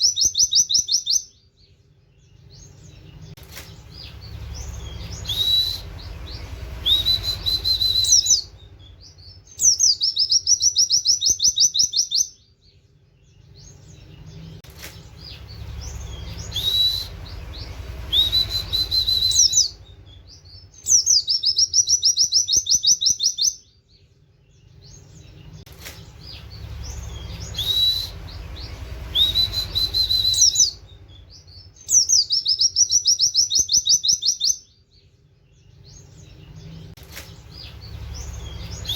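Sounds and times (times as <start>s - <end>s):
bird whistle and trill: 0.0s - 1.5s, 2.2s - 12.5s, 13.5s - 23.8s, 24.8s - 35.0s, 35.8s - 38.9s
low rumble: 2.7s - 9.5s, 13.4s - 20.7s, 25.1s - 31.8s, 36.2s - 38.9s.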